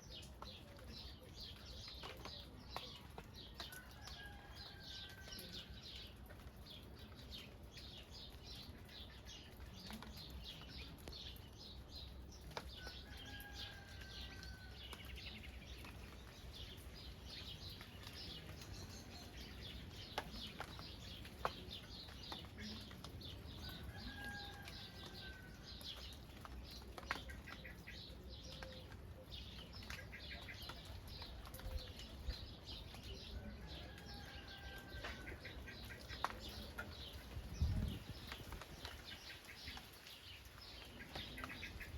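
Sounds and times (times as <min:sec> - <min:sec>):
birds chirping: 0:00.0 - 0:41.9
light rain patter: 0:00.0 - 0:41.9.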